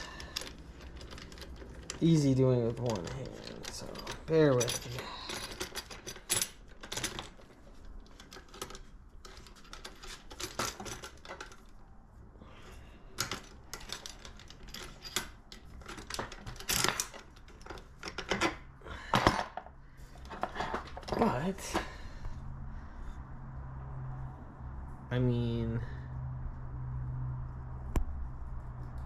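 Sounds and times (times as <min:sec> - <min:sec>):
metal tool clicking and clattering: 0:00.0 - 0:07.4, 0:08.0 - 0:11.7, 0:13.2 - 0:19.6.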